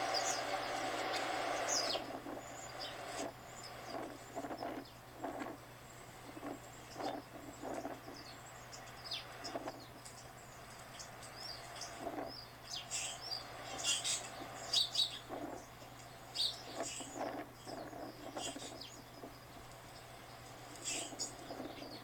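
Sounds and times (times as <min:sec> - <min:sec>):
small birds chirping and twittering: 0:00.0 - 0:22.0.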